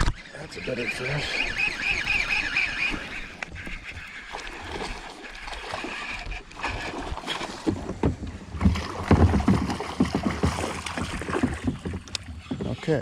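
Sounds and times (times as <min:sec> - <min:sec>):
knocks and thumps on kayak: 0:06.6 - 0:13.0.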